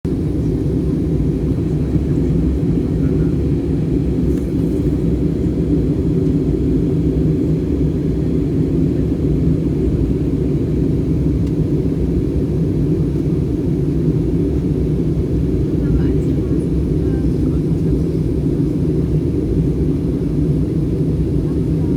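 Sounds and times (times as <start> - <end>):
airliner cabin drone: 0.1 - 21.9.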